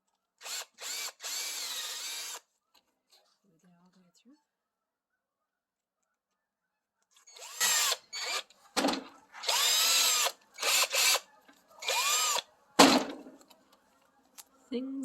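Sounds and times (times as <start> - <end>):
power drill motor whine: 0.4 - 2.4, 7.3 - 8.4, 9.4 - 11.2, 11.8 - 12.4.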